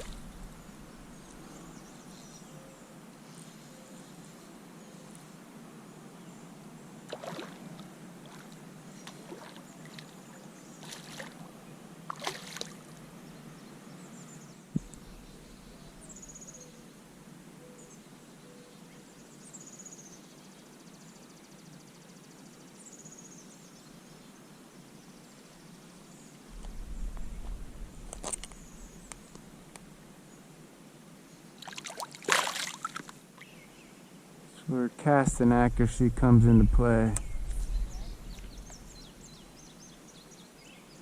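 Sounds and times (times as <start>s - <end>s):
wind rumble on microphone: 0.0s - 1.8s, 14.8s - 16.0s, 26.5s - 30.1s, 35.2s - 40.0s.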